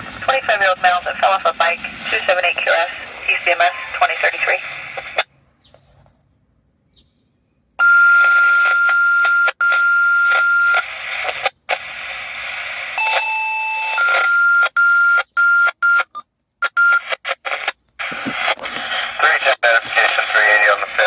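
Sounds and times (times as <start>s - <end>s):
radio alert tones: 0.0s - 5.3s, 7.8s - 21.0s
radio hiss: 0.0s - 5.3s, 10.8s - 13.0s, 17.2s - 21.0s.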